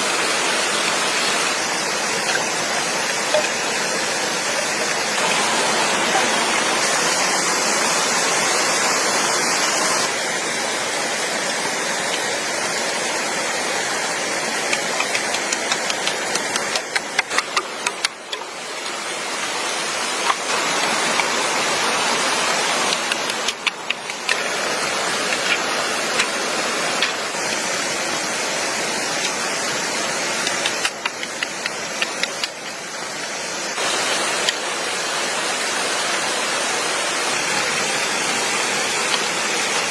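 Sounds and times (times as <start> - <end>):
stream water rushing: 0.0 - 39.9
small clicks and taps: 14.7 - 18.4, 30.4 - 32.8.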